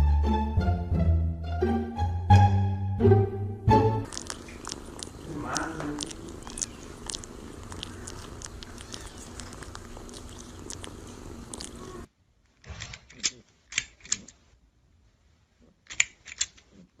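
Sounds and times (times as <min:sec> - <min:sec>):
cat purring: 0:04.0 - 0:12.1.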